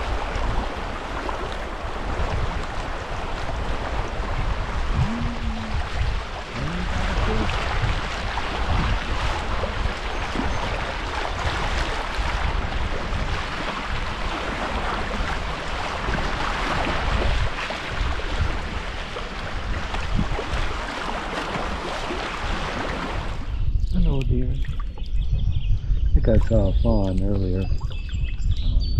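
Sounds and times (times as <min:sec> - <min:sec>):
river water rushing: 0:00.0 - 0:19.7
low rumble: 0:01.5 - 0:11.6.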